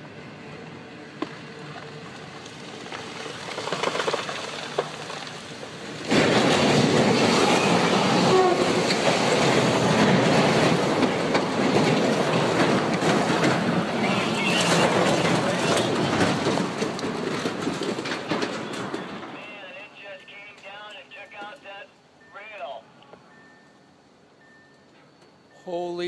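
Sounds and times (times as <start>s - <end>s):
wheels rattling on track: 0.0s - 19.5s
train rumble: 0.0s - 26.0s.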